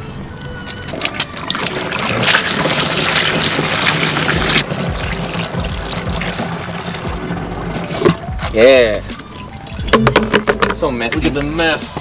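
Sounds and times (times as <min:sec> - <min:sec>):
coolant pouring and splashing: 0:00.6 - 0:12.0.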